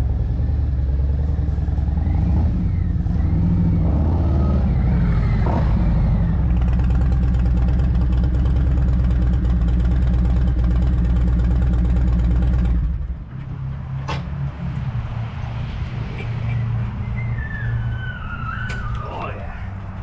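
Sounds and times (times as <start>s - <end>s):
sharp squeak: 16.4s - 19.2s.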